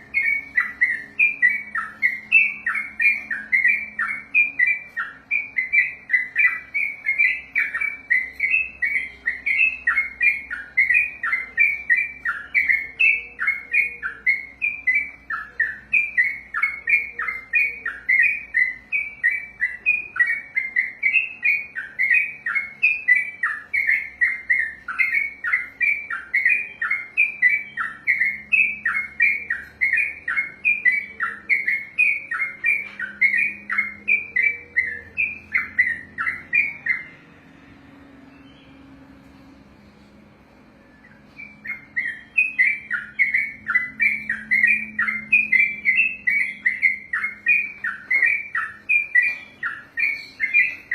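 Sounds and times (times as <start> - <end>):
bird singing repeated notes: 0.0 - 50.9.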